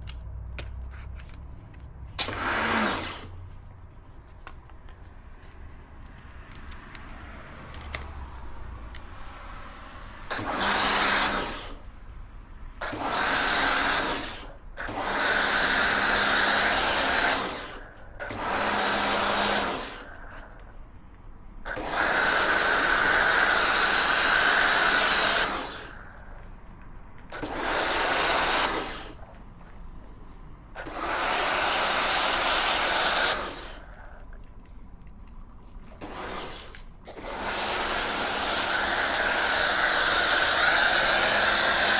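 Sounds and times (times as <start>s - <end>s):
water jet hissing: 2.2s - 3.4s, 10.2s - 12.0s, 12.8s - 20.7s, 21.6s - 26.4s, 27.3s - 29.3s, 30.8s - 34.3s, 35.8s - 41.9s
pressure washer motor running: 10.3s - 11.8s, 12.9s - 20.3s, 21.7s - 26.0s, 27.3s - 29.2s, 30.8s - 34.1s, 36.0s - 41.9s.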